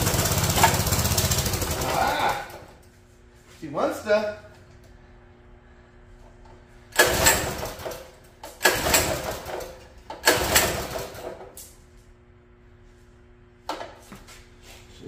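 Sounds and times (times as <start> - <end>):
small engine pull-started: 0.0 - 2.7, 7.0 - 11.5.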